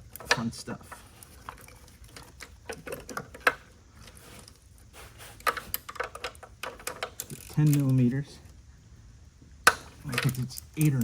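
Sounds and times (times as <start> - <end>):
hand tools clicking and knocking: 0.0 - 3.6, 5.4 - 8.0, 9.7 - 11.0.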